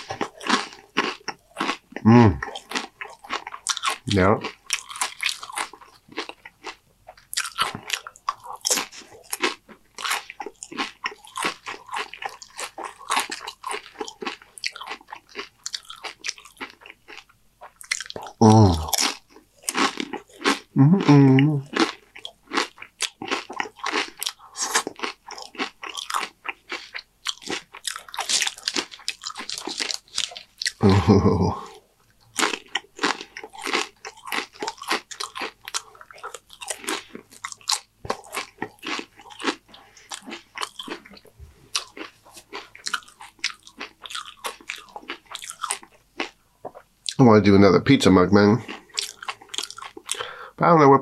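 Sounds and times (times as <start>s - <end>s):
loud crunching of chips: 0.0s - 31.5s, 32.2s - 46.4s, 48.6s - 50.5s
short vocal sounds: 2.0s - 2.4s, 18.4s - 19.0s, 20.8s - 21.7s, 30.8s - 31.7s.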